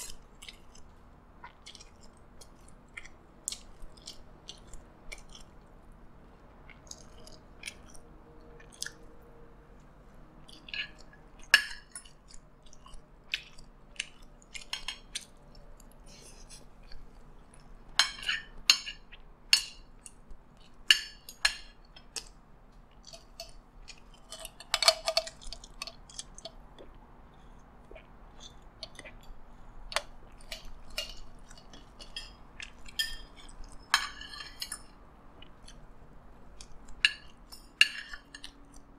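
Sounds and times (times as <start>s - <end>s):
chewing food: 0.0s - 38.9s
cutlery scraping ceramic plates: 30.9s - 35.0s.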